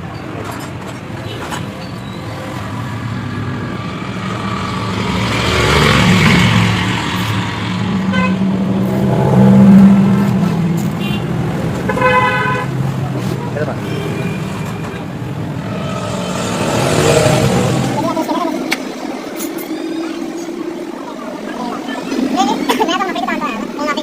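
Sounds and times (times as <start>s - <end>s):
motorcycle engine revving: 3.3s - 12.0s, 14.4s - 19.6s.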